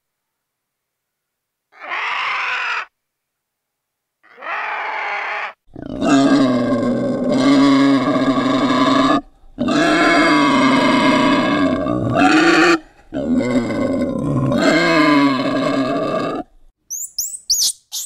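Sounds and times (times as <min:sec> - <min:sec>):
boar grunting: 0:04.3 - 0:16.6.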